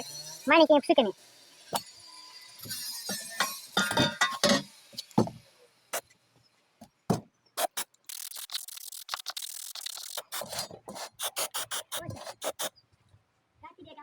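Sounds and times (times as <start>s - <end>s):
clicks and knocks handling can: 3.1s - 5.3s
aerosol can spraying: 7.6s - 12.7s.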